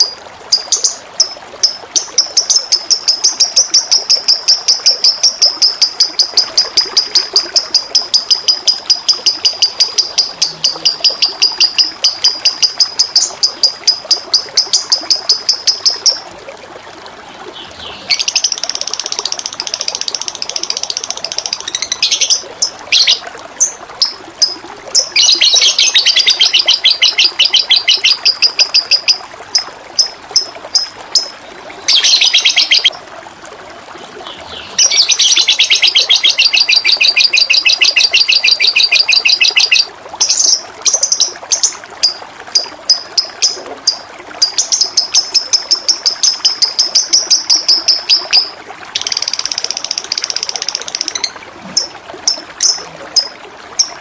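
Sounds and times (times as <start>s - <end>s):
flowing water: 0.0s - 54.0s
songbird trilling and chirping: 17.6s - 23.2s, 24.0s - 29.2s, 31.9s - 32.9s, 34.5s - 42.2s.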